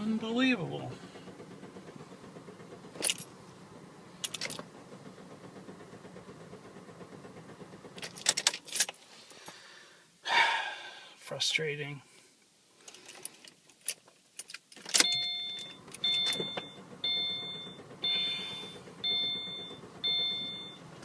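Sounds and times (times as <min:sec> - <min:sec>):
car keys jangling in ignition: 0:02.9 - 0:03.4, 0:04.2 - 0:04.7, 0:07.9 - 0:09.0, 0:12.8 - 0:20.8.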